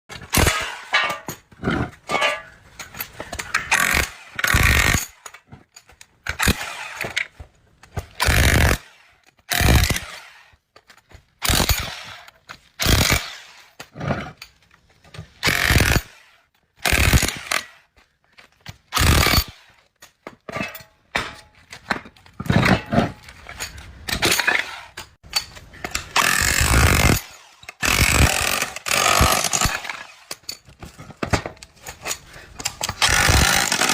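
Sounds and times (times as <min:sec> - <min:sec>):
power tool bursts: 0:15.4 - 0:16.1, 0:33.0 - 0:33.9.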